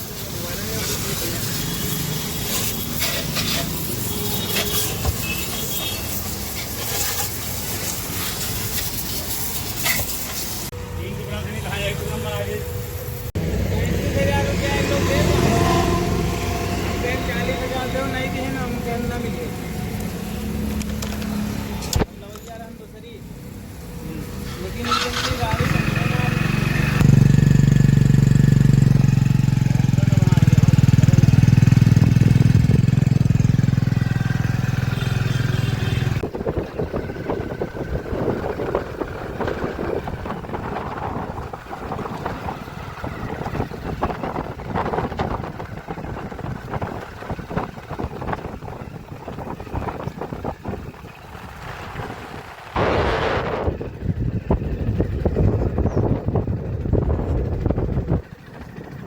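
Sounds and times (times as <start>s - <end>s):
vehicle engine running: 23.4s - 59.0s
loud rushing noise: 49.8s - 55.2s.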